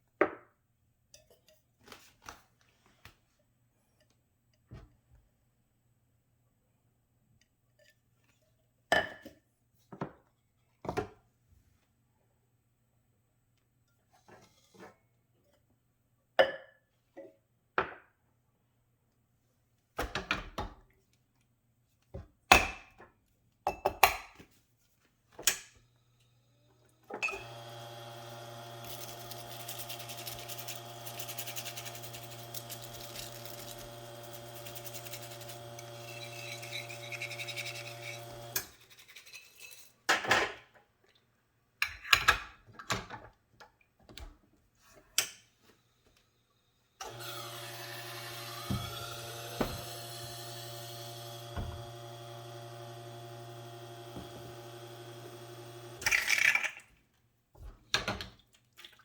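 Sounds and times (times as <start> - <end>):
espresso machine pump hum: 27.2 - 38.6, 47.0 - 56.0.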